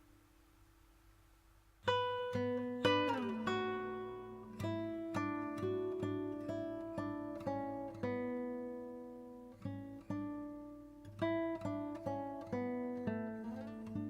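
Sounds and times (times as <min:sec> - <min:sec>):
acoustic guitar picking and strumming: 0:01.8 - 0:14.0.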